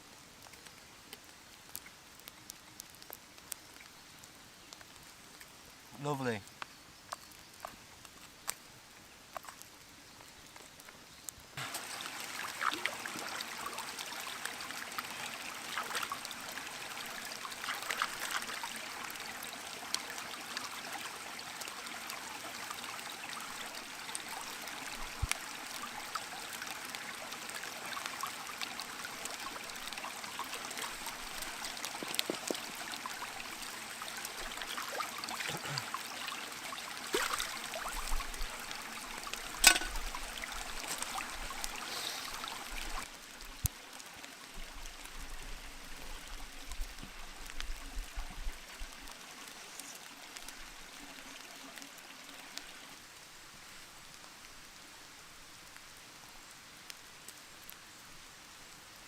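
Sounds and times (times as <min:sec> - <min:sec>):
small ticks and drips: 0:00.0 - 0:59.0
water trickling: 0:11.6 - 0:53.0.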